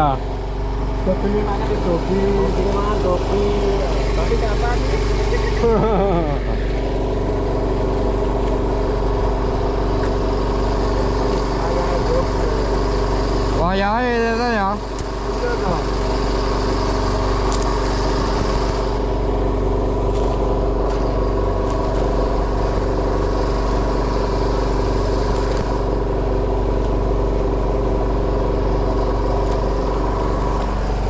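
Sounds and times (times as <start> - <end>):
boat engine running steadily: 0.0 - 31.0.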